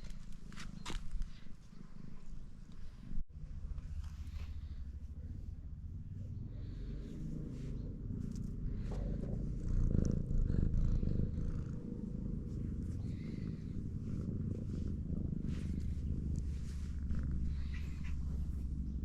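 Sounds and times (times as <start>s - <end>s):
cat purring: 3.6s - 19.0s.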